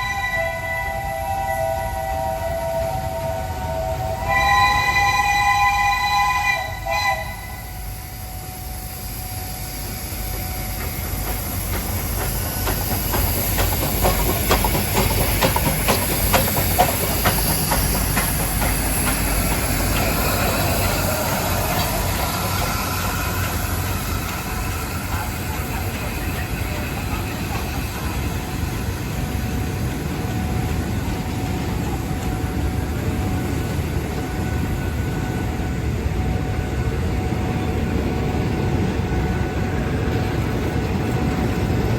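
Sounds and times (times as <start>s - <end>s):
steam locomotive whistle: 0.0s - 11.2s
train wheels clacking over rails: 7.7s - 41.9s.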